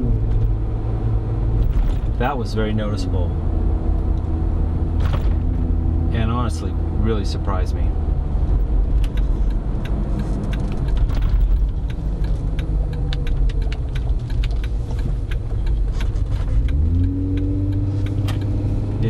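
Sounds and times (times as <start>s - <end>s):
engine and exhaust rumble: 0.0s - 19.0s
light clicks and rattles: 8.5s - 18.5s.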